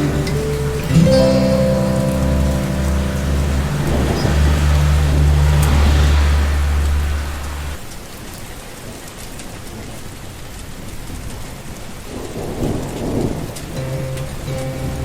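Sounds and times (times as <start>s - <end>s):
steady rain falling: 0.0s - 15.0s
low rumble of thunder: 12.1s - 15.0s.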